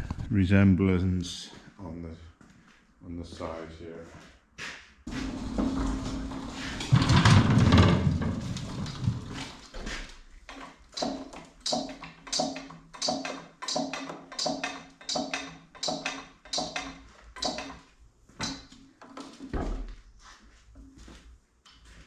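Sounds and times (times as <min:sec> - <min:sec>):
metal being struck: 0:11.0 - 0:17.8.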